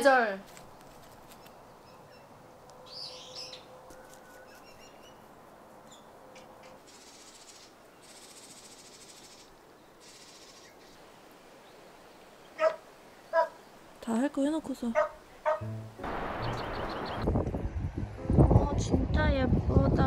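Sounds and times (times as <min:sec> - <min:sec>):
faint bird chirps: 0:16.4 - 0:17.2.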